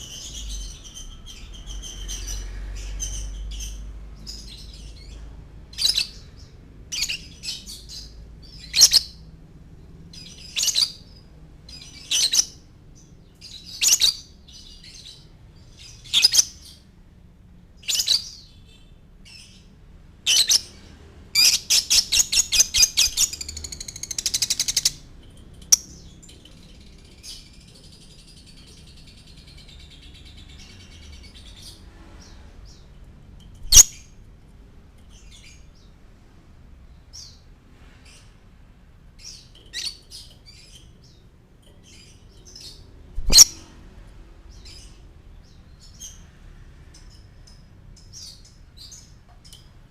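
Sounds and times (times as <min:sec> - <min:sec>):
lovebird chirping and trilling: 0:05.7 - 0:06.2, 0:06.9 - 0:09.2, 0:10.2 - 0:11.1, 0:11.7 - 0:12.6, 0:13.4 - 0:15.2, 0:15.8 - 0:16.8, 0:17.8 - 0:18.5, 0:20.3 - 0:20.7, 0:21.4 - 0:25.0, 0:33.6 - 0:34.2, 0:39.2 - 0:41.2, 0:41.8 - 0:43.6.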